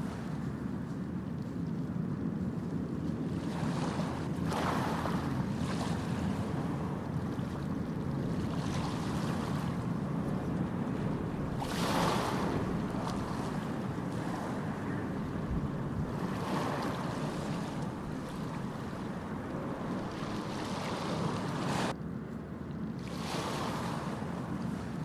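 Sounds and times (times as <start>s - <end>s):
wind rumble on microphone: 0.0s - 25.0s
water and clothes sloshing: 3.0s - 22.0s.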